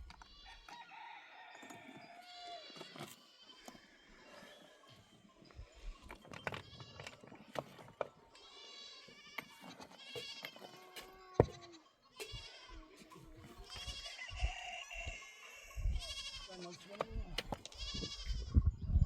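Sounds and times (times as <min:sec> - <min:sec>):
livestock bleating: 0:02.0 - 0:03.7, 0:08.4 - 0:17.0, 0:17.7 - 0:18.5.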